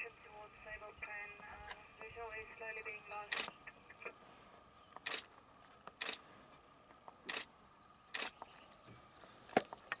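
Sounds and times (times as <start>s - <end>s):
faint steady background tone: 0.0s - 10.0s
camera shutter clicking: 3.3s - 3.5s, 5.0s - 5.2s, 6.0s - 6.2s, 7.3s - 7.5s, 8.1s - 8.4s.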